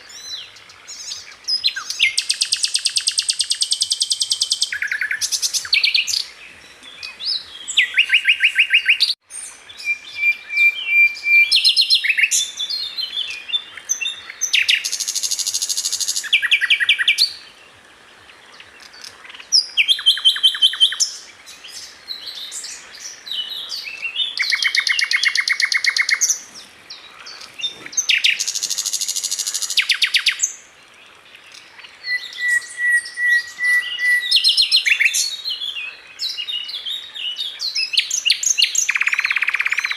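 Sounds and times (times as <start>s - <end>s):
flycatcher singing trills: 31.5s - 39.9s
thin held bird whistle: 32.0s - 35.2s.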